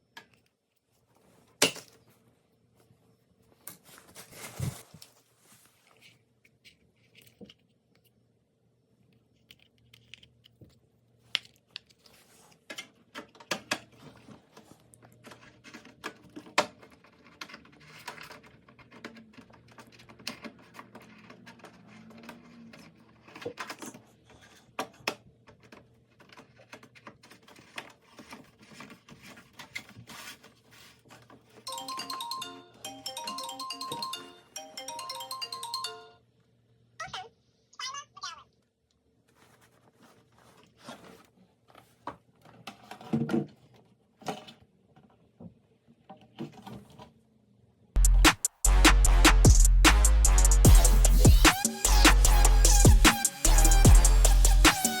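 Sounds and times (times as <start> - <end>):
hands handling parts and tools: 0.0 - 8.2, 9.0 - 31.8.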